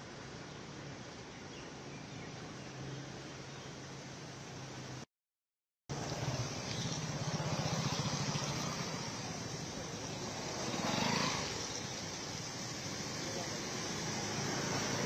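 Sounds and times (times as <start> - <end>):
vehicle engines running: 5.9 - 15.0
water rushing and tyre noise: 5.9 - 15.0.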